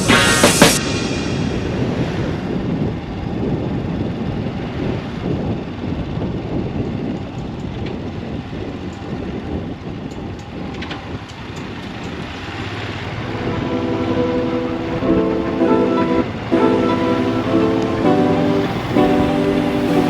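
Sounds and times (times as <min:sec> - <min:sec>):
wind noise: 0:00.0 - 0:12.4
motorcycle engine and road rumble: 0:01.6 - 0:13.3.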